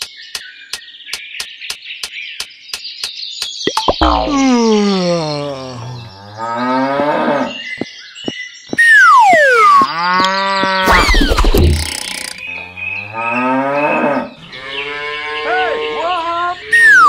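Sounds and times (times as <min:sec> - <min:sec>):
cartoon falling whistle: 0:03.7 - 0:05.7, 0:08.8 - 0:10.0, 0:16.7 - 0:17.0.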